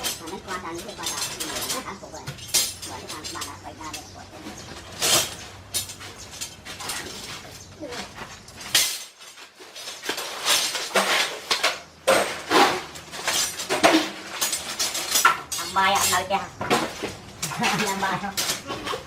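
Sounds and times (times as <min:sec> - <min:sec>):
hard objects clinking together: 0:00.0 - 0:19.0.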